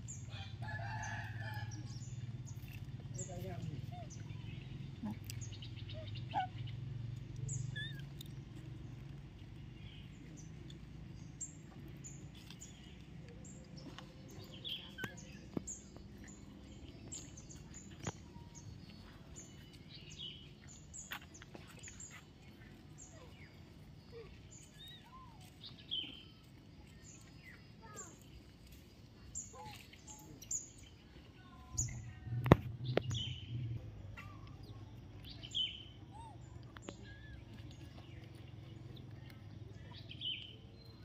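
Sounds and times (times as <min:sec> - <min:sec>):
birds chirping: 0:00.0 - 0:41.0
low hum: 0:30.3 - 0:40.0.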